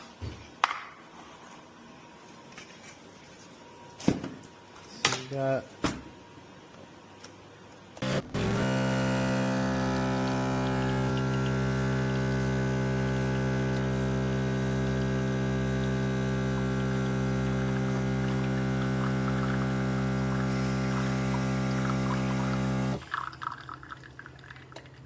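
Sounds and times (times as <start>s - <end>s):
espresso machine pump buzzing: 8.0s - 25.0s.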